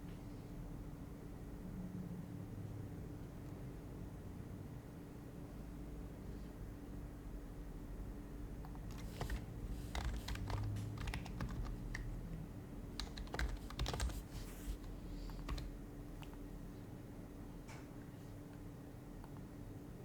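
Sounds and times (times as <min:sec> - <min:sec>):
soft muted keyboard typing: 0:08.6 - 0:16.5.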